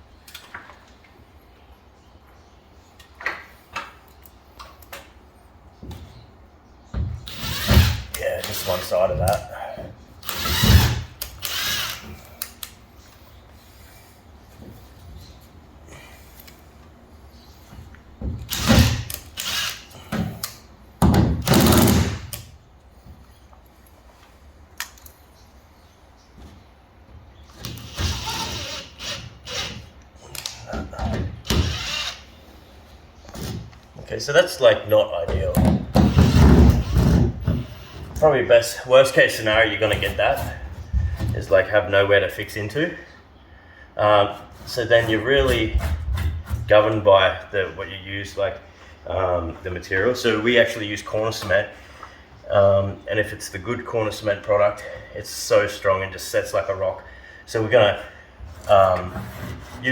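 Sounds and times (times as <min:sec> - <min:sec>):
noisy strokes on drywall: 0:58.5 - 0:59.9.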